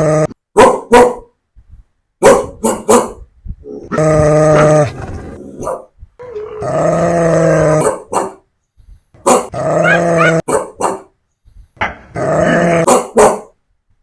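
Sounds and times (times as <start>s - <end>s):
dog barking: 0.6s - 1.3s, 2.2s - 3.2s, 5.6s - 5.9s, 7.8s - 8.4s, 9.2s - 11.1s, 12.8s - 13.6s
dog growl-howling: 3.9s - 5.4s, 6.2s - 7.9s, 9.6s - 10.4s.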